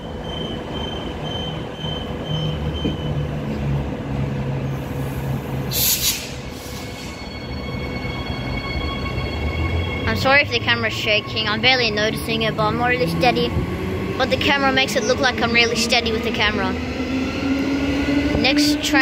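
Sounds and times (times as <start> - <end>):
electric train rumble and motor whine: 0.0 - 19.0
air hiss: 5.0 - 7.2.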